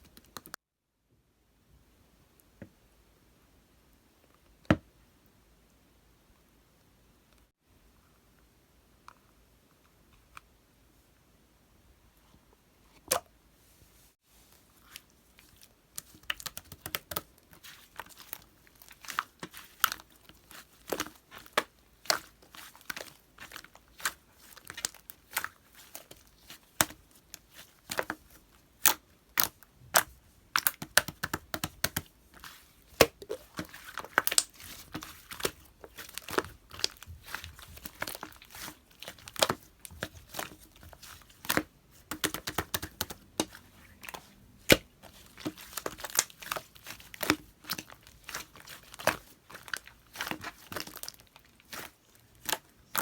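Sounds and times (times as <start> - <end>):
slime squished by hand: 14.8 - 53.0.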